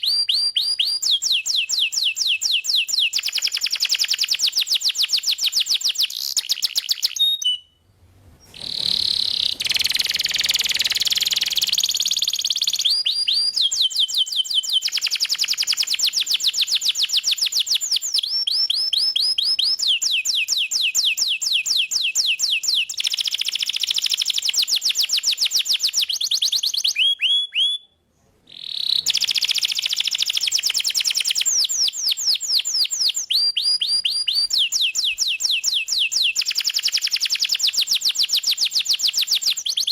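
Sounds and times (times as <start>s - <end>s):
canary singing trills: 8.5s - 27.8s.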